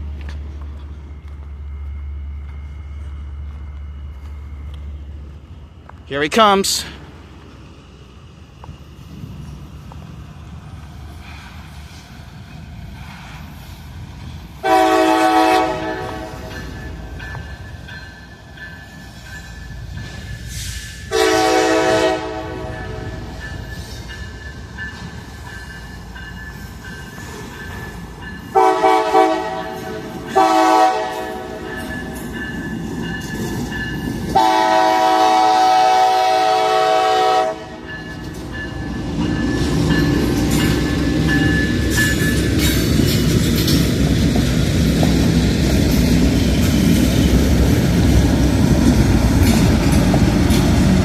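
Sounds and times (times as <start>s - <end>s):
crossing bell ringing: 0.0s - 6.9s, 15.0s - 35.4s, 36.4s - 44.2s
train rumble: 0.0s - 51.0s
locomotive horn blasts: 14.6s - 16.5s, 21.1s - 23.2s, 28.6s - 31.7s, 34.4s - 37.8s.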